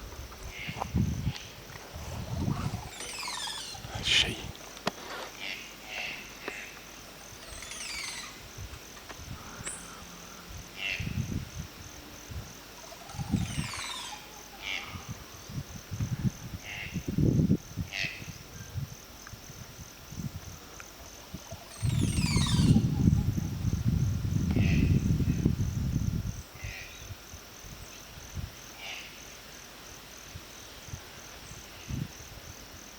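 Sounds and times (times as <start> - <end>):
insect pulsing high trill: 0.5 - 4.7, 5.4 - 11.6, 12.8 - 15.6, 21.3 - 26.0
bird cascade of high notes: 2.8 - 4.4, 7.4 - 8.4.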